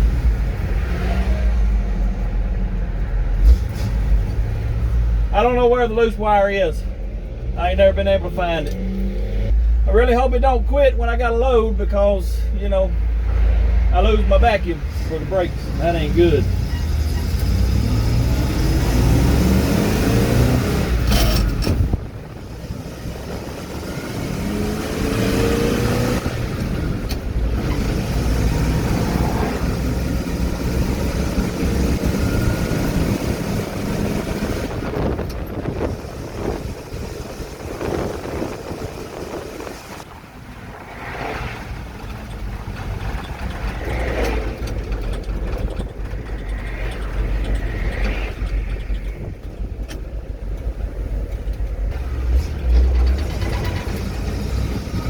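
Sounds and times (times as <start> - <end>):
truck engine running: 14.0 - 40.8, 41.7 - 55.0
rattles and knocks: 41.7 - 55.0.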